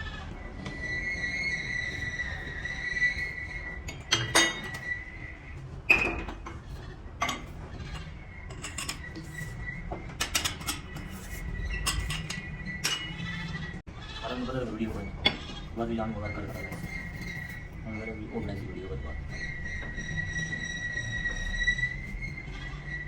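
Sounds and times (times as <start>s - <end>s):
metal tools clinking: 3.2s - 5.0s, 7.2s - 13.5s.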